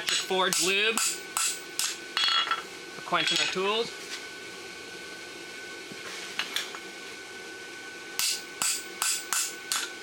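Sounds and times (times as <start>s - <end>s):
hammer striking punch on anvil: 0.2s - 2.5s, 8.2s - 9.9s.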